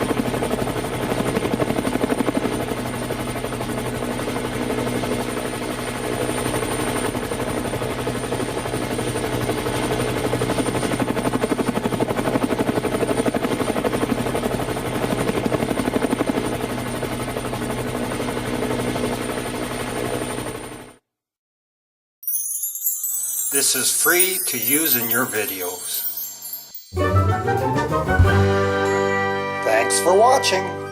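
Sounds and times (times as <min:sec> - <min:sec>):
helicopter rotor blades chopping: 0:00.0 - 0:20.4.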